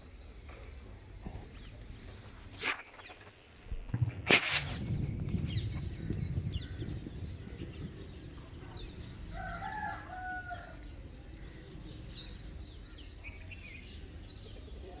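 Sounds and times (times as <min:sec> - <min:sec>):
small birds chirping: 0:00.0 - 0:15.0
rooster crowing: 0:09.3 - 0:10.8.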